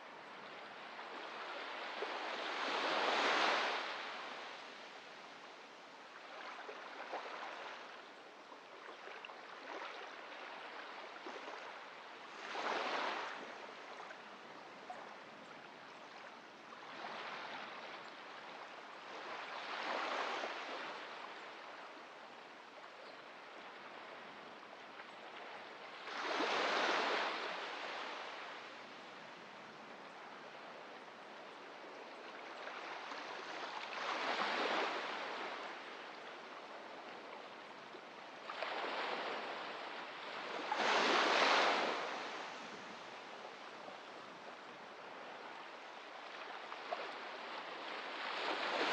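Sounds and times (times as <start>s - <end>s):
waves washing up on shore: 32.4s - 48.9s.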